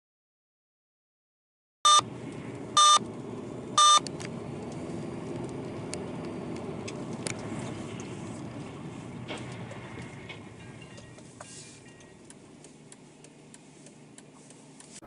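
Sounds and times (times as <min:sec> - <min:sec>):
vehicle road and engine noise: 0:01.8 - 0:15.0
short electronic beeps: 0:01.9 - 0:02.1, 0:02.8 - 0:03.0, 0:03.8 - 0:04.0
faint clicks: 0:12.0 - 0:15.0.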